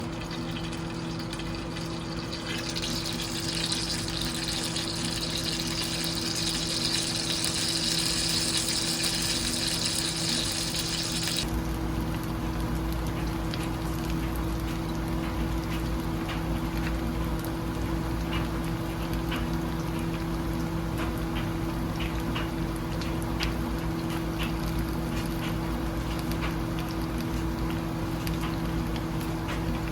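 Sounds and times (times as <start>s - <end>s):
food sizzling in a pan: 0.0s - 11.5s
steady low hum: 0.0s - 11.5s.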